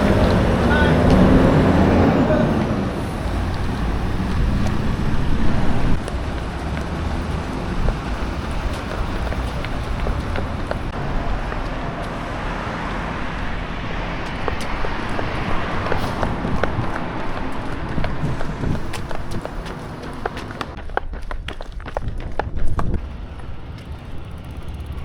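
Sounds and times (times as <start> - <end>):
wind noise on microphone: 0.0 - 11.9, 12.6 - 25.0
ferry engine rumbling: 0.0 - 21.4, 22.0 - 25.0
faint engine hum: 22.9 - 25.0.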